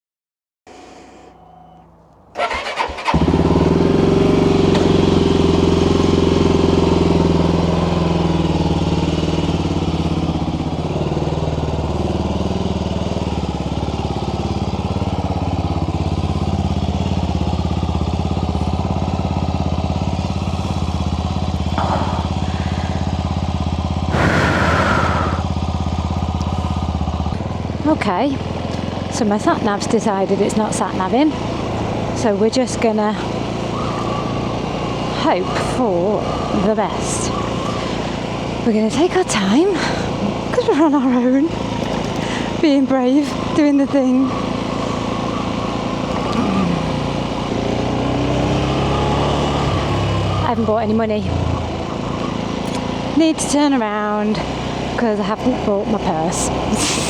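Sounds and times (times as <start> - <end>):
motorcycle starter cranking: 0.7 - 5.4, 41.6 - 42.8
motorcycle engine idling: 0.7 - 57.0.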